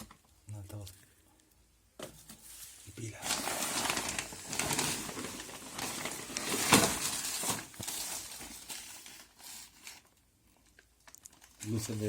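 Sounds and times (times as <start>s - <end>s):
objects being handled among debris: 2.0s - 9.6s.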